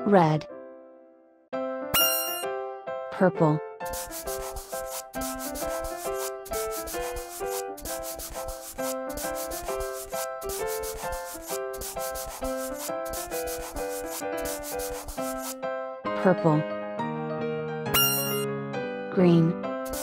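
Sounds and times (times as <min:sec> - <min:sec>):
light melody of pitched notes: 0:02.0 - 0:02.5, 0:18.0 - 0:18.5
marker scribbling on paper: 0:03.8 - 0:15.6.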